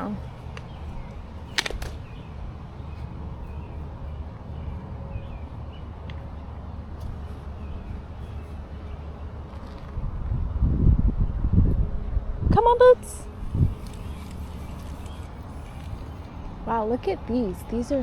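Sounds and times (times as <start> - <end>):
walking rumble: 0.0 - 10.5
sharp clicks: 1.5 - 2.1
wind on microphone: 9.6 - 16.8.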